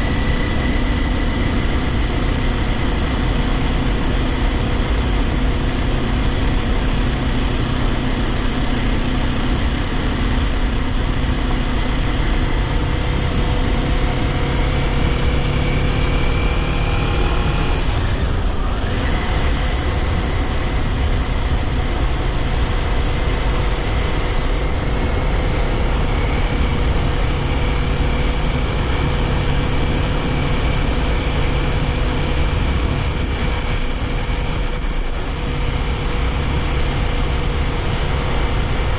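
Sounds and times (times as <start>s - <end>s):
motorcycle engine running: 0.0s - 38.9s
wind rush: 17.2s - 38.9s.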